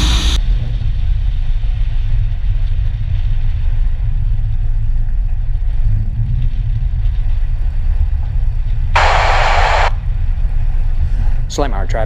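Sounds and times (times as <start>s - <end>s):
airplane engine idling: 9.0s - 10.0s.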